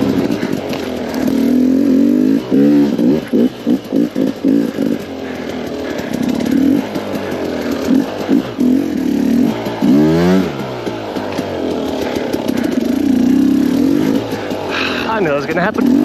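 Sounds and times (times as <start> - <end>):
engine throttle blips: 0.0 - 16.0
two-stroke engine revving: 0.0 - 16.0.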